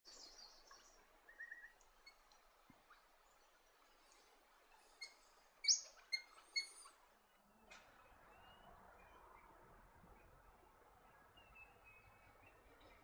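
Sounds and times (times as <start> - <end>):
small birds chirping: 0.1 - 7.4.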